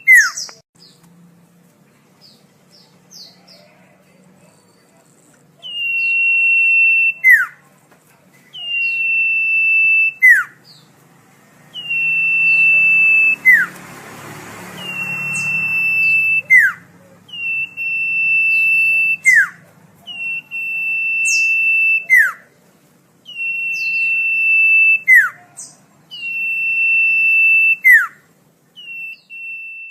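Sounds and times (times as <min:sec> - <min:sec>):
bird whistling song: 0:00.0 - 0:01.0, 0:05.6 - 0:07.6, 0:08.5 - 0:10.9, 0:11.7 - 0:13.8, 0:14.7 - 0:22.5, 0:23.2 - 0:29.9.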